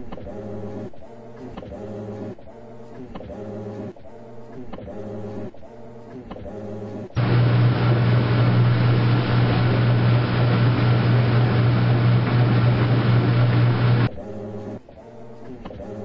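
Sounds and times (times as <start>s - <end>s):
washing machine running: 7.2s - 14.1s.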